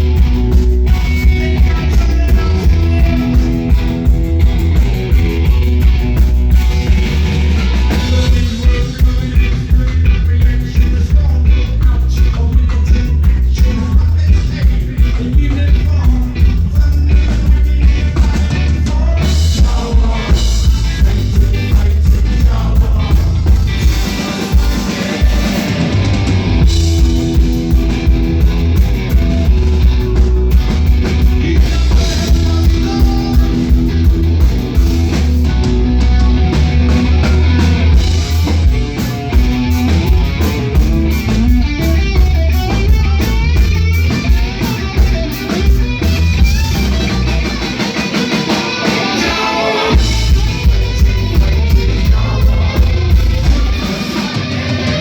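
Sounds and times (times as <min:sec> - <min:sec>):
live punk band playing: 0:00.0 - 0:55.0.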